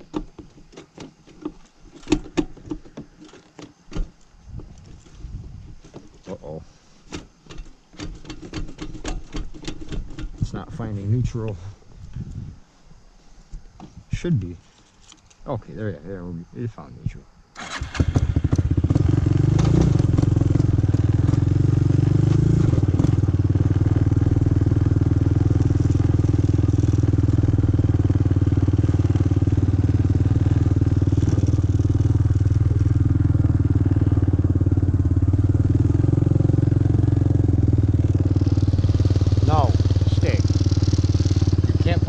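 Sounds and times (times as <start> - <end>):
atv engine idling: 17.6 - 42.0.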